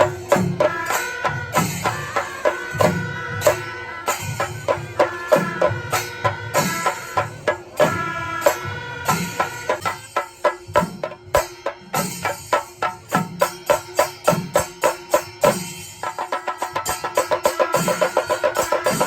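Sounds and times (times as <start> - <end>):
cymbals: 0.0 - 19.0
drums struck rhythmically: 0.0 - 19.0.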